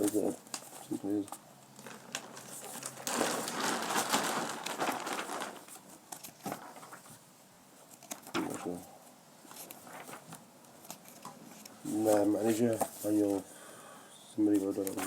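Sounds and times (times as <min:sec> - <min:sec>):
paper pages rustling: 0:00.0 - 0:07.2, 0:09.4 - 0:13.4, 0:14.5 - 0:15.0.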